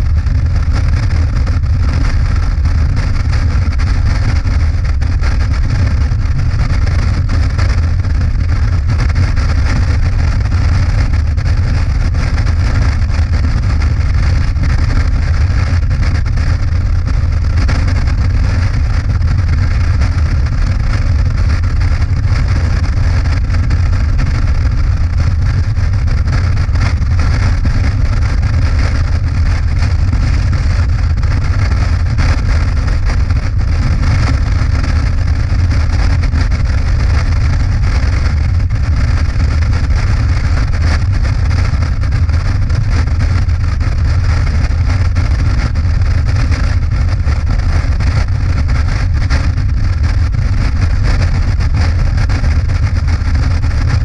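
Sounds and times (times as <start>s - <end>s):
motorcycle engine drone: 0.0s - 54.0s.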